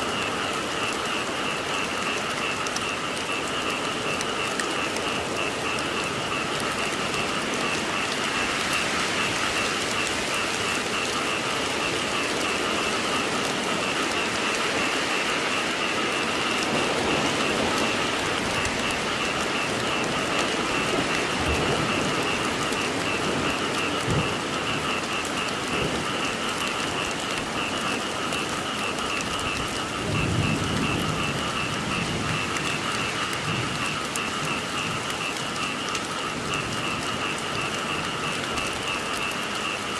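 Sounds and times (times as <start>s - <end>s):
frogs calling: 0.0s - 39.9s
rain falling: 0.0s - 39.9s
low rumble of thunder: 12.0s - 28.6s, 29.4s - 35.3s.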